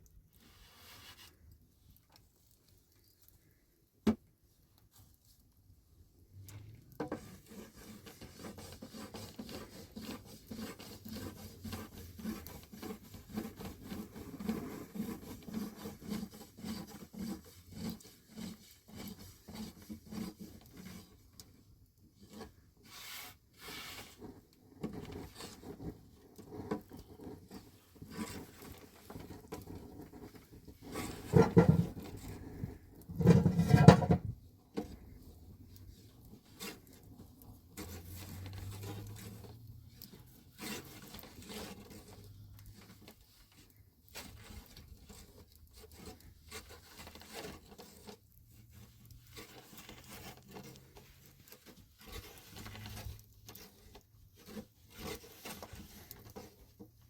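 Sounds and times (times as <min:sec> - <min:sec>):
loud scraping bursts: 0:30.8 - 0:34.3.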